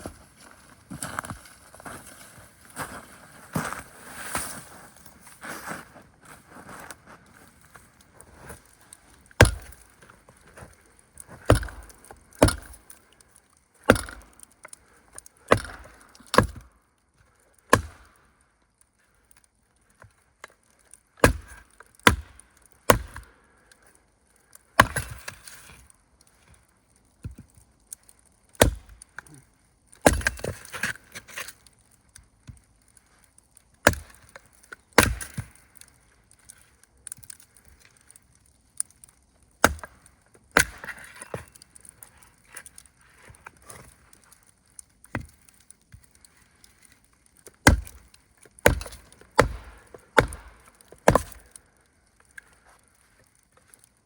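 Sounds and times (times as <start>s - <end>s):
wood splintering crackles: 7.5s - 54.0s
wood being chopped: 9.3s - 10.0s, 11.2s - 13.0s, 13.8s - 14.5s, 15.5s - 16.7s, 17.7s - 18.1s, 21.2s - 23.3s, 24.8s - 25.4s, 28.6s - 29.3s, 30.0s - 31.5s, 33.8s - 35.9s, 39.6s - 41.9s, 45.1s - 45.6s, 47.6s - 51.6s.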